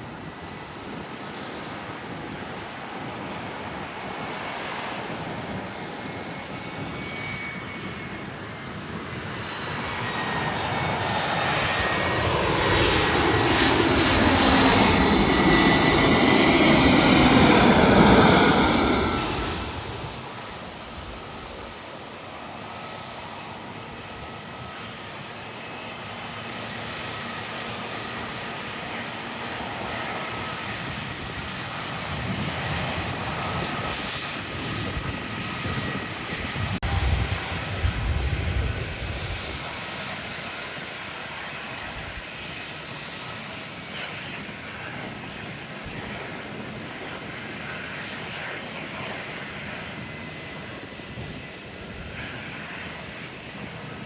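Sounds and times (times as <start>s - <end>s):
jet airliner passing overhead: 0.0s - 54.0s
jet engine whine: 0.0s - 54.0s
heavy low rumble: 13.9s - 21.7s, 36.6s - 39.6s.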